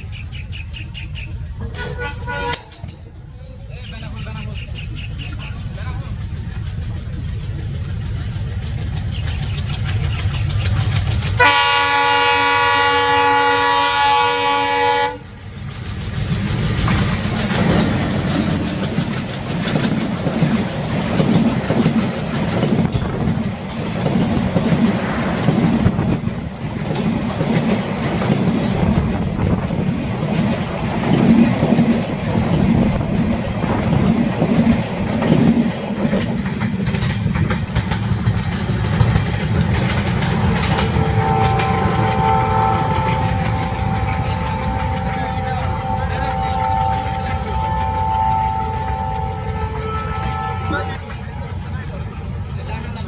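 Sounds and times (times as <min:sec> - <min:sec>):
diesel locomotive engine rumble: 0:00.0 - 0:53.0
train wheels clattering over rails: 0:00.0 - 0:53.0
loud multi-tone train horn: 0:01.7 - 0:02.9, 0:11.4 - 0:15.4, 0:40.6 - 0:51.6.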